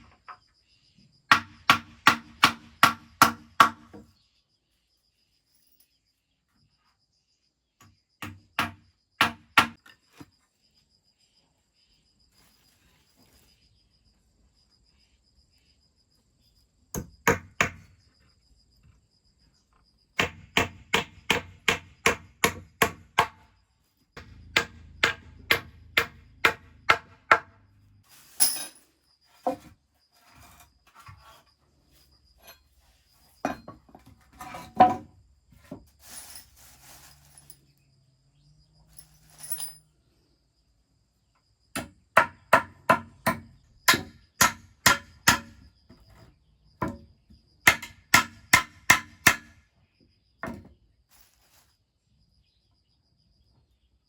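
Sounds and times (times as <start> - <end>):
hand tool striking wood: 1.3 - 4.1, 8.2 - 9.9, 16.9 - 17.9, 20.2 - 23.4, 24.2 - 27.6, 41.8 - 46.2, 46.8 - 49.6.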